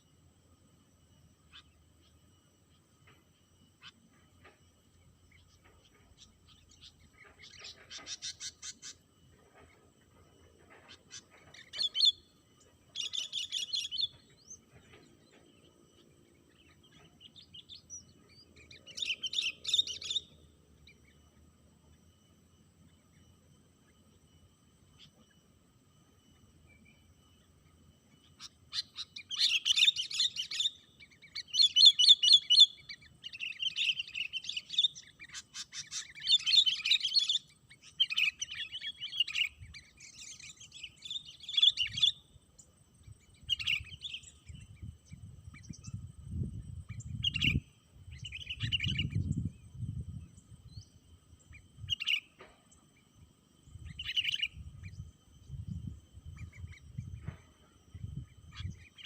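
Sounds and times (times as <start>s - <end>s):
bird chirping: 1.2s - 59.0s.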